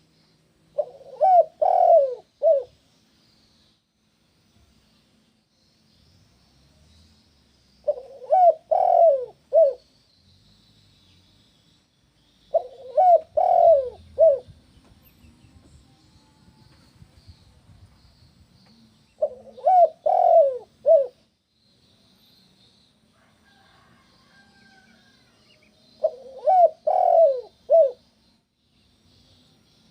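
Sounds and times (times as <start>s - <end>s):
faint high chirping: 0.0s - 29.9s
dove cooing: 0.8s - 2.8s, 7.8s - 9.8s, 12.5s - 14.6s, 19.2s - 21.2s, 25.9s - 28.1s.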